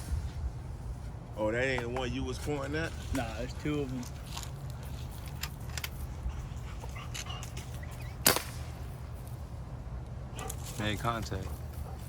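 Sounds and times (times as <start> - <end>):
air rifle shot: 8.2 - 8.8.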